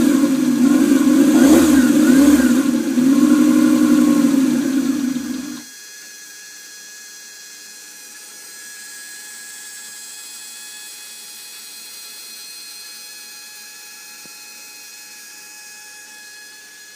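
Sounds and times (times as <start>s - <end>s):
high-pitched electric whir: 0.0s - 5.7s
model engine running: 0.0s - 16.9s.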